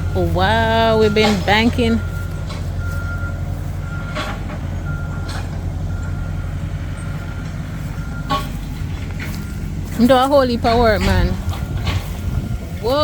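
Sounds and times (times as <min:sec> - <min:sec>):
reversing alarm beeping: 0:00.0 - 0:11.5
diesel engine running: 0:00.0 - 0:13.0
brush cracking: 0:06.8 - 0:13.0.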